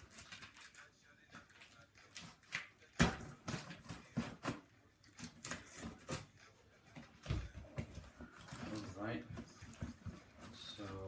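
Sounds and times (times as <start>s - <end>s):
rummaging through cardboard box: 7.1s - 11.0s.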